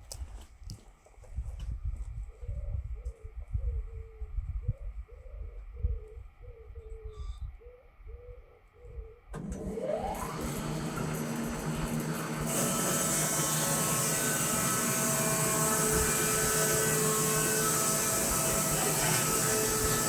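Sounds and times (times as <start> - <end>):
bandsaw motor whining: 9.4 - 20.0.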